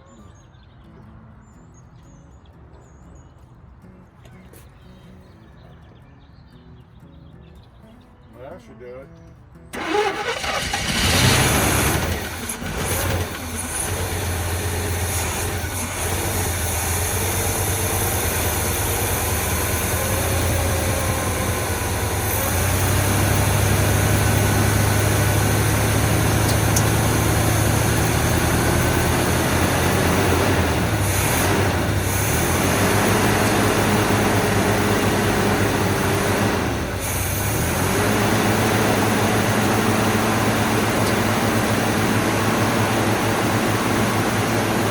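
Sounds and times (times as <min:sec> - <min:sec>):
truck engine running: 0:09.7 - 0:44.9.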